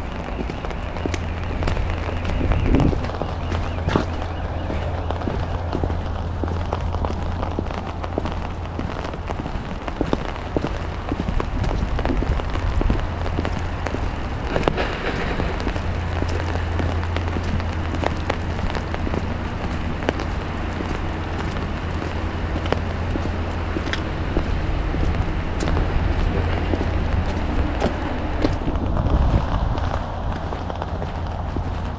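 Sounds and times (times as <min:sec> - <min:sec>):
constant low rumble: 0:00.0 - 0:31.9
rain and wet snow pattering: 0:00.0 - 0:31.9.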